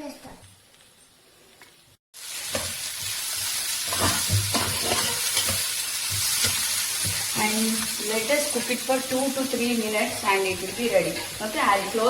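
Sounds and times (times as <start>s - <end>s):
vegetables sizzling in hot oil: 0.1s - 12.0s
spatula scraping and knocking pan: 2.5s - 7.9s, 10.2s - 11.6s.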